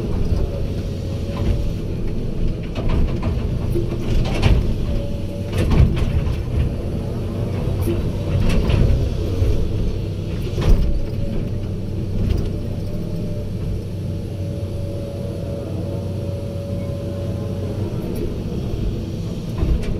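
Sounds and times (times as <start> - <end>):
diesel earthmoving machinery running: 0.0 - 19.9
steady machine whine: 11.1 - 19.9.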